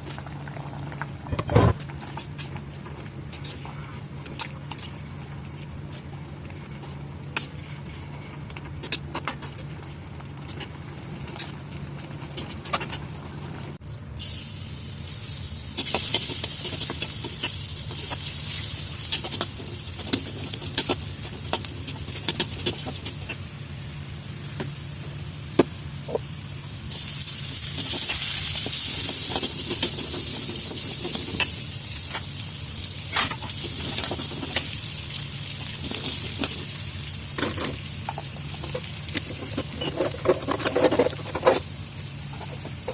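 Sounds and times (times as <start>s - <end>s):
food sizzling in oil: 14.2s - 23.6s, 26.3s - 40.2s.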